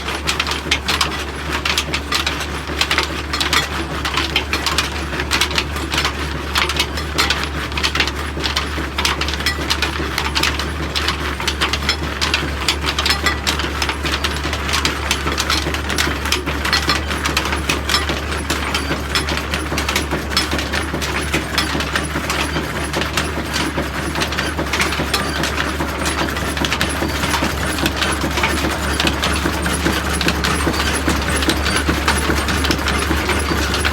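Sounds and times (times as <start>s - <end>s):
flour mill metallic clatter: 0.0s - 33.9s
diesel engine droning: 12.7s - 33.9s.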